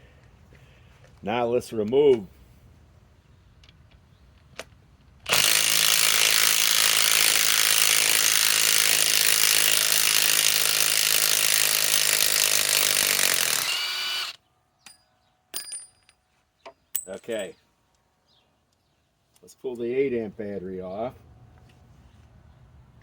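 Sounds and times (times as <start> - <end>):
impact wrench running: 5.3 - 14.4.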